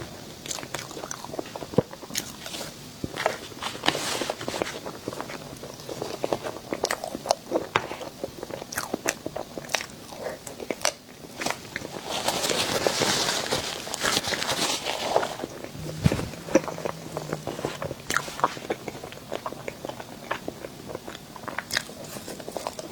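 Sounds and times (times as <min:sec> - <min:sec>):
crunchy bites and chewing: 0:08.5 - 0:12.0, 0:13.8 - 0:22.9.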